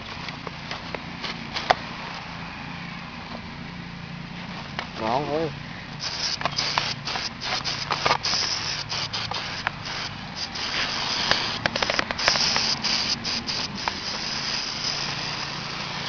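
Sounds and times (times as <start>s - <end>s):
aerosol can spraying: 6.0s - 16.0s.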